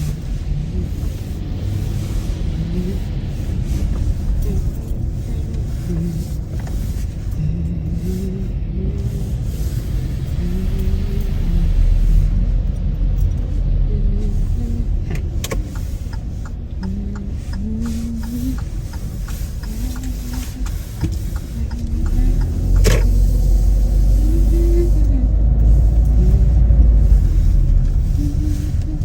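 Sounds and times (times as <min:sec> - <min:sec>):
car engine and road rumble: 0:00.0 - 0:29.0
quick light ticks: 0:15.2 - 0:24.2.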